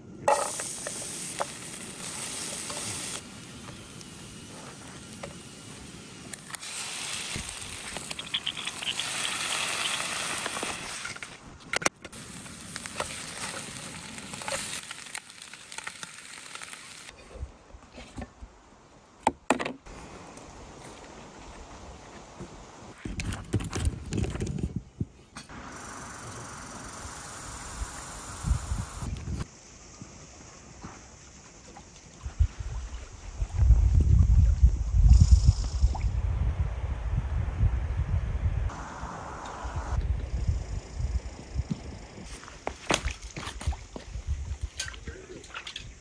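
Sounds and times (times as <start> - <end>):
food sizzling in a pan: 0.3 - 11.0, 12.2 - 17.1.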